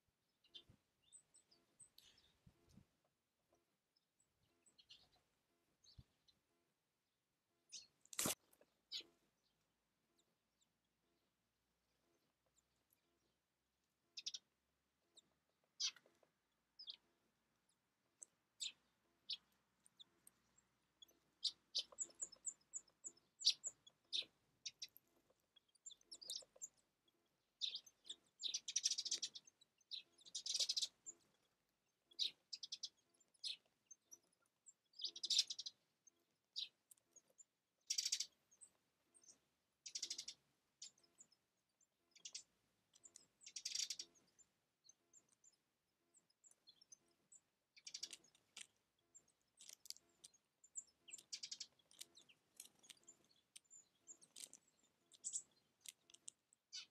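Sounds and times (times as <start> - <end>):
songbirds chirping: 0.0 - 56.9.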